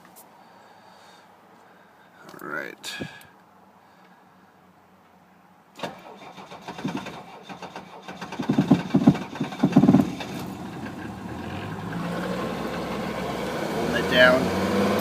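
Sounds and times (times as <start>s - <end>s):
starter motor cranking: 5.8s - 11.0s
diesel engine starting and idling: 5.8s - 15.0s.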